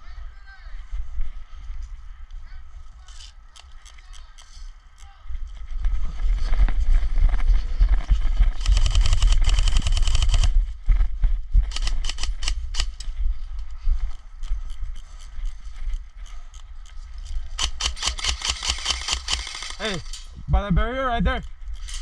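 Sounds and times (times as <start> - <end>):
low rumble on microphone: 5.2 - 17.6, 20.2 - 22.0
airsoft guns firing: 17.6 - 20.2.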